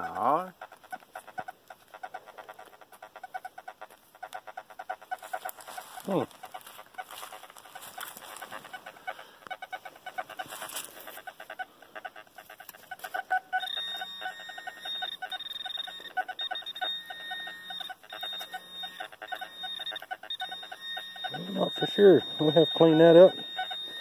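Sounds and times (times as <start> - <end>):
metal detector pulsing beeps: 12.8 - 24.0
metal detector high-pitched tone: 12.9 - 24.0.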